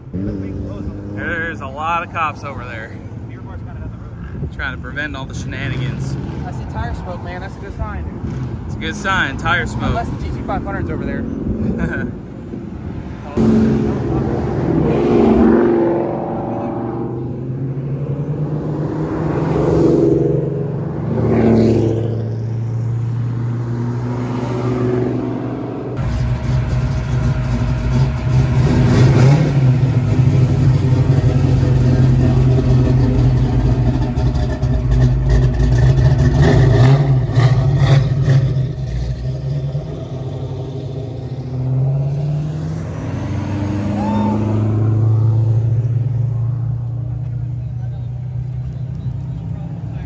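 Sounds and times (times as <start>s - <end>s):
car engines revving: 0.0s - 50.0s
car engine idling: 26.0s - 41.6s.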